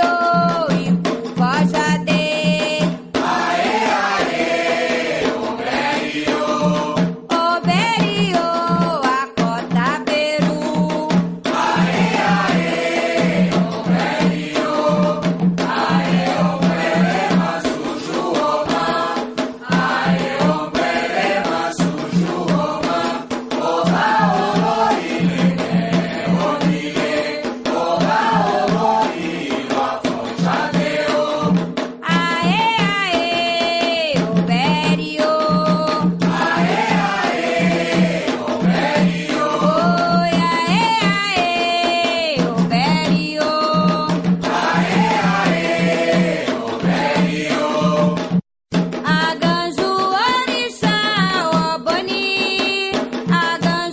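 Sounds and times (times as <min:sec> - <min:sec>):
voices singing call-and-response: 0:00.0 - 0:48.4, 0:49.1 - 0:53.9
steady drum beat: 0:00.0 - 0:53.9.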